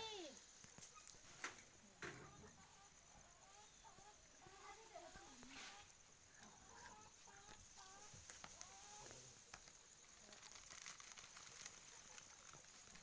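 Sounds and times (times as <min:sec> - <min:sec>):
hens clucking: 0:02.0 - 0:09.2.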